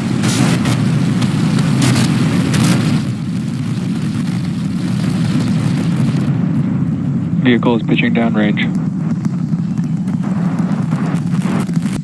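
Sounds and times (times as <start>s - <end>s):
rocket engine crackle: 0.0s - 12.0s
rocket engines rumbling: 0.0s - 12.0s.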